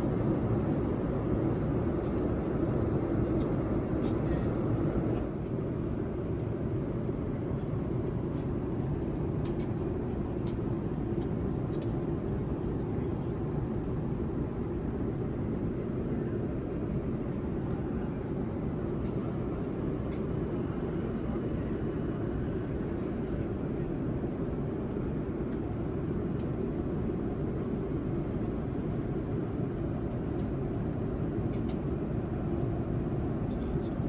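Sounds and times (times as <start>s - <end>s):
airliner cabin rumble: 0.0s - 8.0s, 11.4s - 26.1s.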